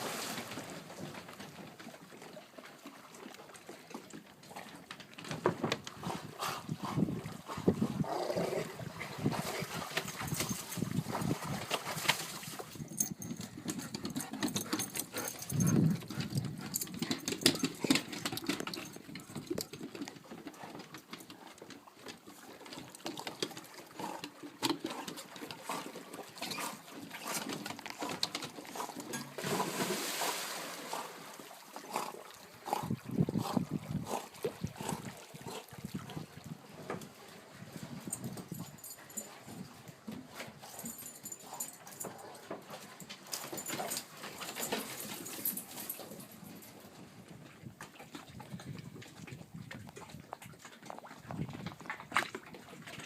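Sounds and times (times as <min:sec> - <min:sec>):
dogs splashing in water: 0:00.0 - 0:37.2.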